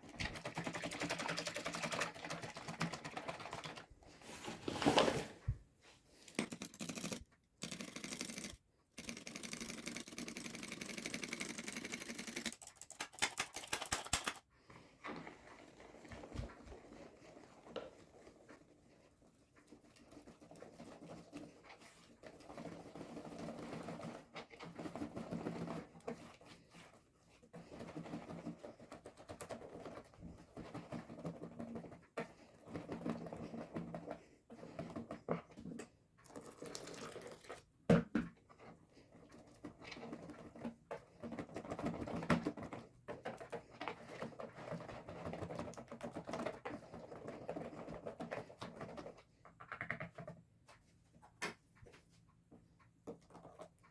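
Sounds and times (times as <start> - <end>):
batter whisked in a bowl: 0.0 - 4.4, 6.2 - 13.5, 14.5 - 37.9.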